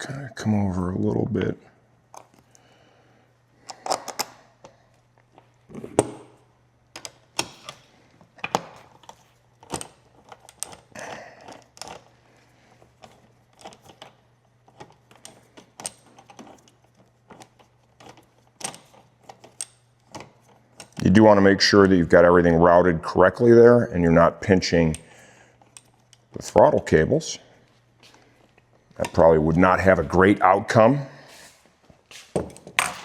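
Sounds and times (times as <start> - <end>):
low steady hum: 0.0 - 33.0
parts clicking and rattling: 3.6 - 21.2, 24.7 - 26.8, 32.2 - 33.0.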